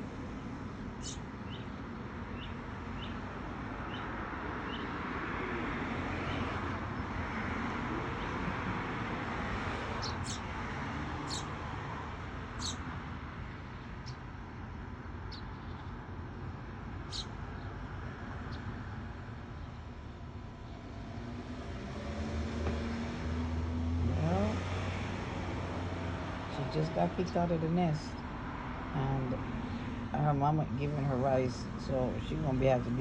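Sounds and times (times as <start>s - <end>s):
traffic noise: 0.0s - 33.0s
small birds chirping: 0.8s - 5.0s, 10.0s - 10.5s, 11.2s - 11.6s, 12.5s - 21.0s.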